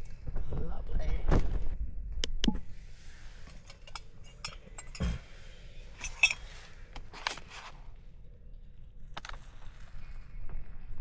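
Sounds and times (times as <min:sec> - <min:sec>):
camping cookware clinking: 0:02.5 - 0:07.4.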